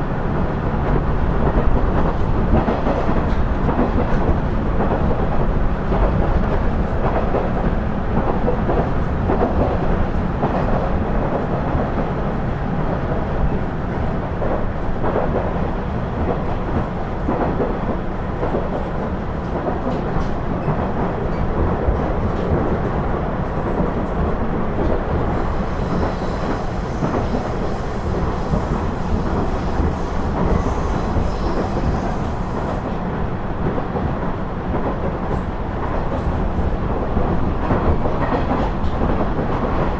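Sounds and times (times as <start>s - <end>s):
diesel railcar engine rumble: 0.0s - 39.9s
rail-joint clicks: 8.3s - 34.1s
wheels on rails: 23.5s - 33.8s
faint high whine: 25.3s - 33.0s.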